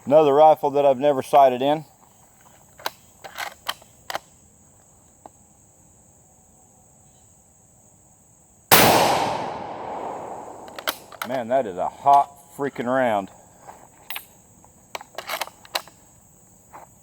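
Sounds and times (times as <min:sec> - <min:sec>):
rifle shot with long echo: 0:08.7 - 0:11.2
faint clicks: 0:09.8 - 0:11.4.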